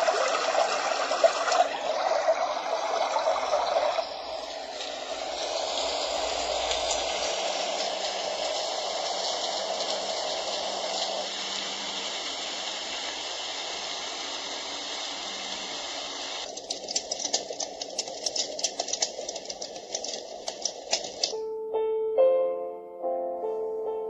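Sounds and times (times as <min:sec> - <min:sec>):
white noise rushing hiss: 0:01.7 - 0:16.5
crackling with sharp clicks: 0:16.4 - 0:21.4.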